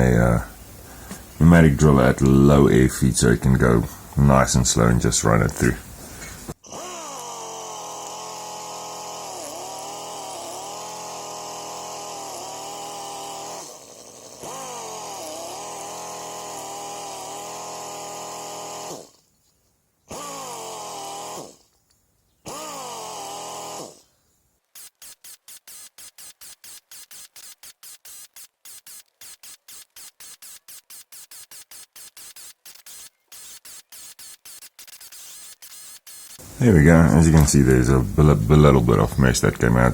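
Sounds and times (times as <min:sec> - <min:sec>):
pneumatic drill whine: 0:06.1 - 0:19.3, 0:20.1 - 0:21.8, 0:22.5 - 0:24.2, 0:24.8 - 0:36.6
fast even pulsing: 0:06.6 - 0:19.2, 0:24.8 - 0:39.9.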